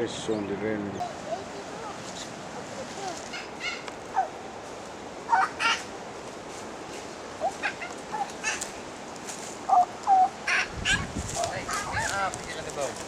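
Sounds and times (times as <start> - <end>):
bird chirps and squawks: 3.2 - 4.3, 5.3 - 5.9, 7.4 - 8.7.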